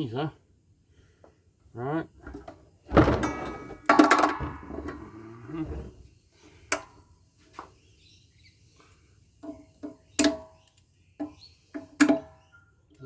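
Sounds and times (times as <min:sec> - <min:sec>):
ringing metal knocks: 0:02.9 - 0:05.1.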